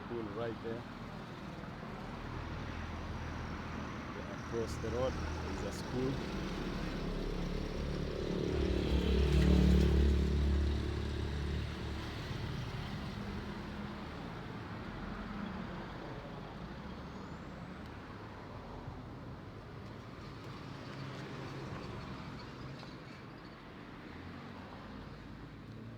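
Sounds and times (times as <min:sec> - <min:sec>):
steady traffic noise: 0:00.0 - 0:25.9
heavy vehicle engine passing: 0:04.6 - 0:14.3.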